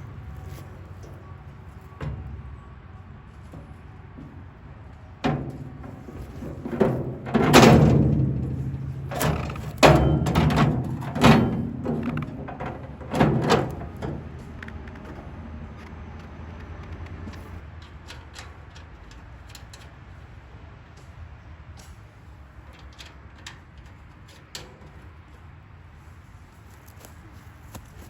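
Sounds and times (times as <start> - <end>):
sheet metal clanking: 5.2 - 15.4.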